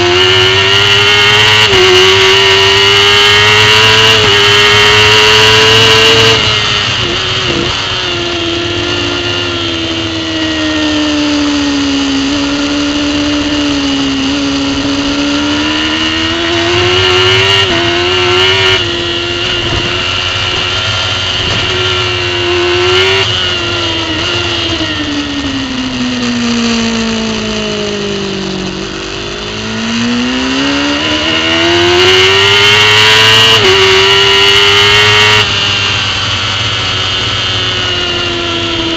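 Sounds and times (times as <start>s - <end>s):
motorcycle engine racing: 0.0s - 38.9s.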